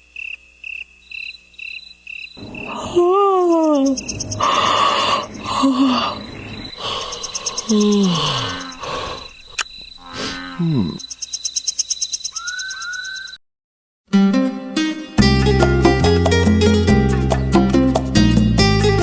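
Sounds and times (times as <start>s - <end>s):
rapid high trills: 2.4s - 9.0s
high chirping: 2.4s - 13.4s
lower calls sliding down: 12.4s - 13.4s.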